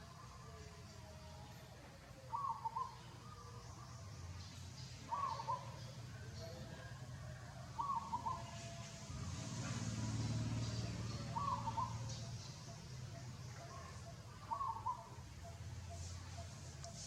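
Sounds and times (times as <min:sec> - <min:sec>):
bird calling: 0:02.2 - 0:06.9, 0:07.8 - 0:09.4, 0:10.4 - 0:17.0.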